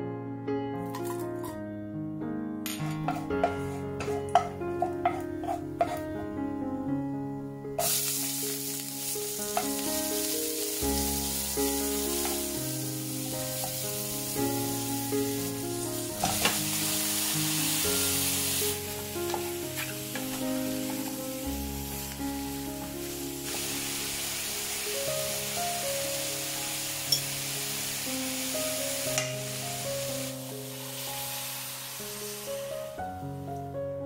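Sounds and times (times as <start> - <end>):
background music: 0.0 - 34.0
spoon knocking against pot: 2.7 - 6.0
wooden spoon stirring: 3.0 - 6.0
onions sizzling in hot oil: 3.1 - 6.0, 7.8 - 33.0.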